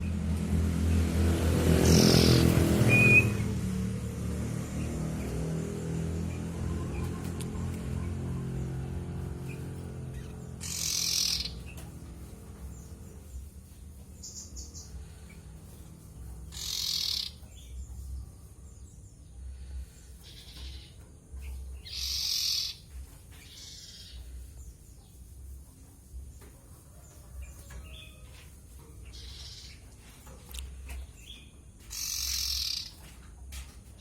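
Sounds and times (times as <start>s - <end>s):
birds giving harsh hissing calls: 1.5s - 33.2s.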